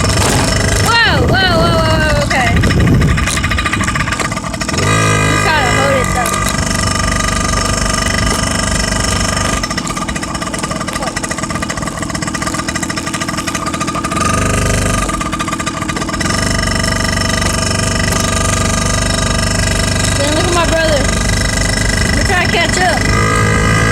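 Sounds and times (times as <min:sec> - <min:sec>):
small motorcycle engine running: 0:00.0 - 0:23.9.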